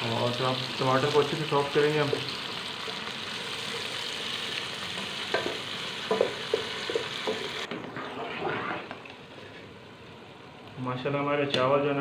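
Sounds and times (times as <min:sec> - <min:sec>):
food sizzling in a pot: 0:00.0 - 0:10.3
wooden spoon knocking pot: 0:05.3 - 0:07.5.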